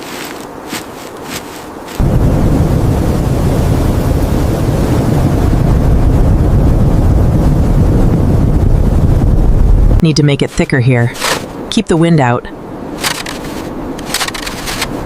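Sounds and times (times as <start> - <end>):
strong wind on microphone: 2.0 - 10.8.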